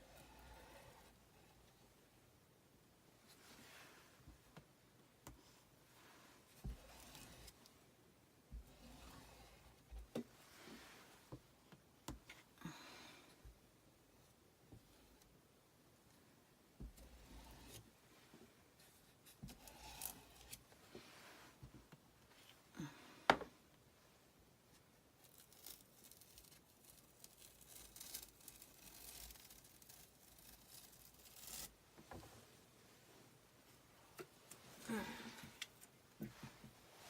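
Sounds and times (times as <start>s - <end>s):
hands scraping and rustling materials: 6.0s - 7.7s, 16.9s - 21.7s, 24.8s - 32.6s.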